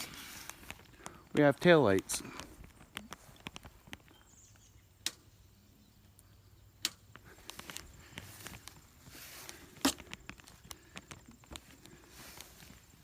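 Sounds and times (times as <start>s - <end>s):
sharp clicks: 2.2s - 5.3s, 6.8s - 8.8s
light ticking and scuffing: 7.1s - 13.0s.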